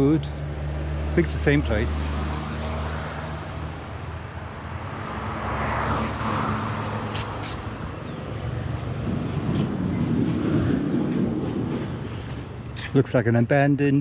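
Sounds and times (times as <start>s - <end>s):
vehicle engine hum: 0.0s - 10.0s
vehicle passing: 0.0s - 12.0s
brief clicks: 6.8s - 7.8s.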